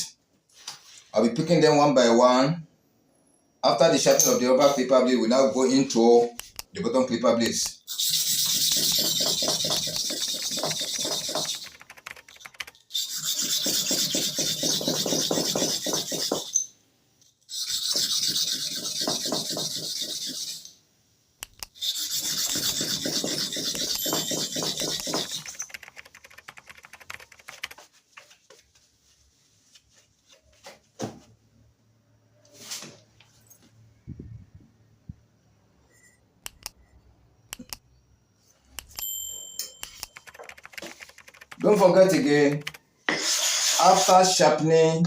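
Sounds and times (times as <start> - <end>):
blade scraping on sharpening stone: 7.9 - 11.6, 12.9 - 16.7, 17.5 - 20.8, 21.8 - 25.6.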